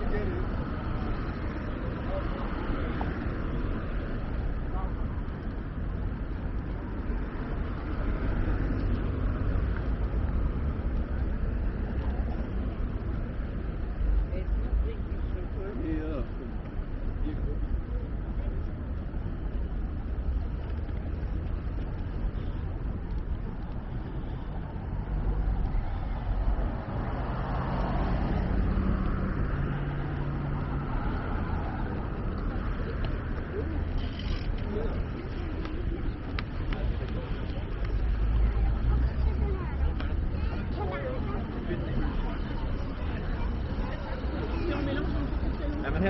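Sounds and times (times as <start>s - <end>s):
deep city rumble: 0.0s - 46.0s
street traffic: 0.0s - 46.0s
vehicle engine hum passing: 20.3s - 46.0s.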